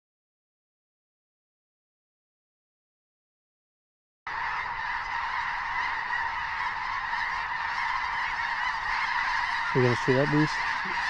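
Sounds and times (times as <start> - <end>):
geese honking: 4.3 - 11.0.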